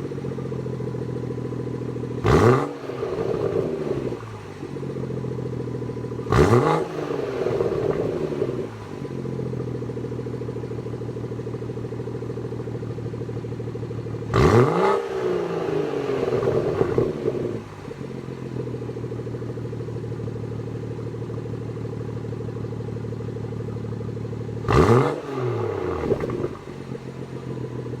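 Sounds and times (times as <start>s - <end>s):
car engine idling: 0.0s - 28.0s
engine revving: 1.0s - 11.1s, 13.6s - 18.1s, 24.6s - 27.0s.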